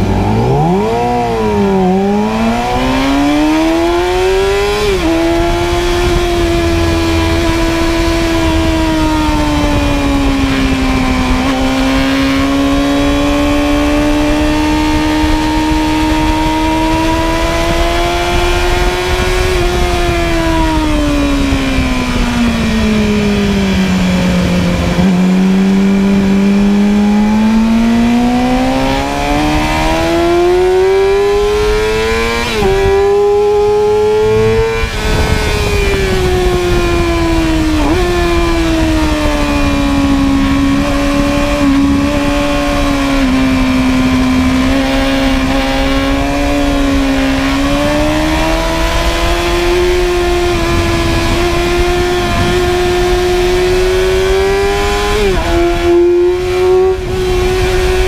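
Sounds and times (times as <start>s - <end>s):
motorcycle engine at speed: 0.0s - 58.0s.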